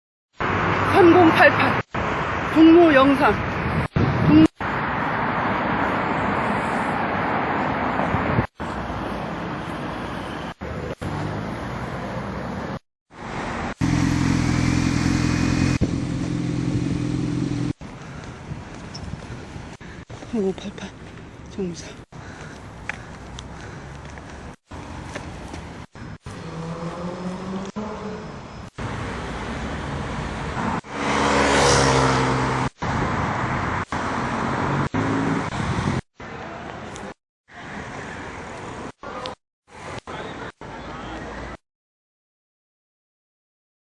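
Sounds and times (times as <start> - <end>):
vehicle passing close: 0.4 - 18.7, 22.8 - 36.0
car engines running: 0.4 - 35.6
road traffic: 0.4 - 41.6
vehicle engine running close: 8.0 - 21.3.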